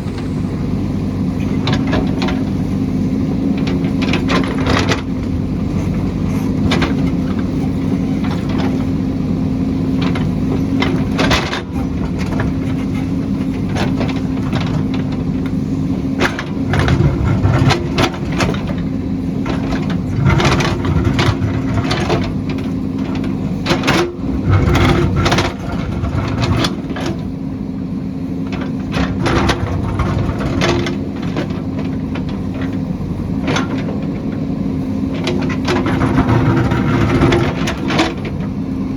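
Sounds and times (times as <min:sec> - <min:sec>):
heavy machine engine running: 0:00.0 - 0:38.9
clanks and knocks: 0:16.2 - 0:27.3, 0:28.4 - 0:34.4, 0:35.0 - 0:38.5.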